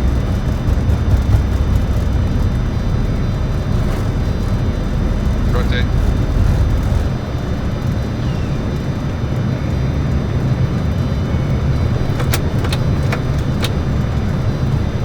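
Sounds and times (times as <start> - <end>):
roar of engines and airflow: 0.0 - 15.0
sharp clicks: 11.9 - 14.0.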